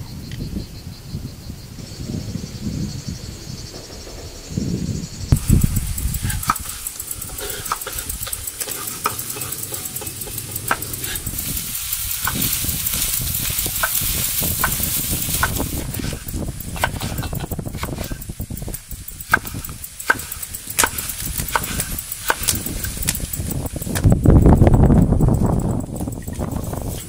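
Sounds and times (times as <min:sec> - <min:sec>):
metal utensil clicking on pan: 0:05.5 - 0:15.8.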